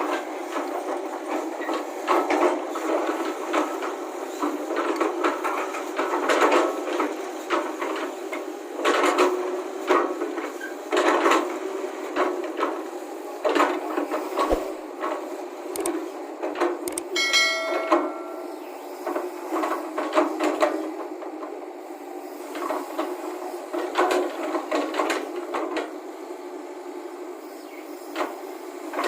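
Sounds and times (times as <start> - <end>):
excavator engine drone: 0.0 - 25.5
brief pitched tone: 17.2 - 18.9.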